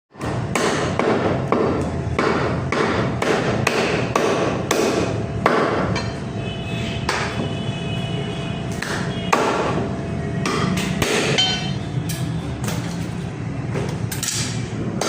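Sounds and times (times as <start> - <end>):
cleaver chopping meat: 0.1 - 6.0, 7.1 - 7.4, 8.7 - 9.8, 10.4 - 11.4.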